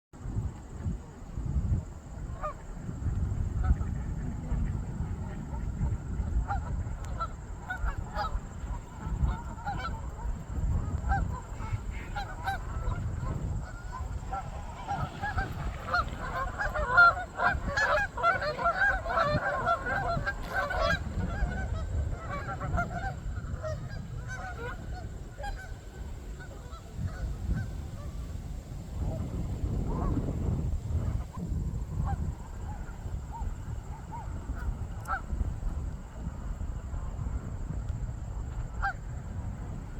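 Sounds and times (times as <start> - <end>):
geese honking: 3.6 - 28.3, 31.0 - 36.3.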